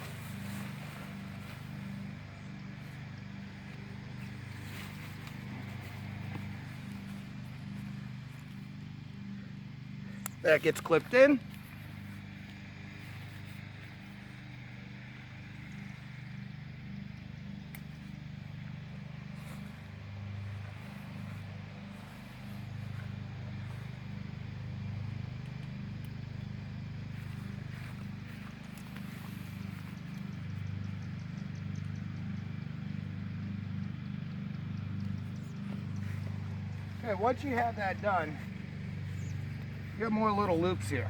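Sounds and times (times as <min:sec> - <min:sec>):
tent fabric rustling and clicks: 0:00.0 - 0:09.0
low mechanical hum: 0:00.0 - 0:41.0.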